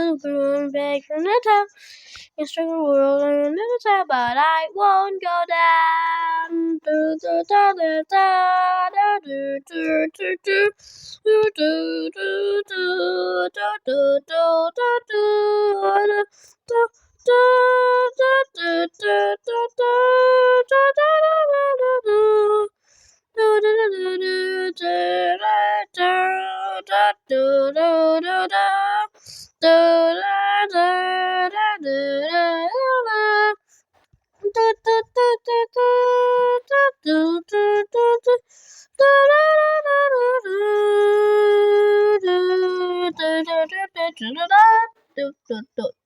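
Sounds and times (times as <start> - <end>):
high-pitched voice singing: 0.0 - 22.7, 34.4 - 46.0.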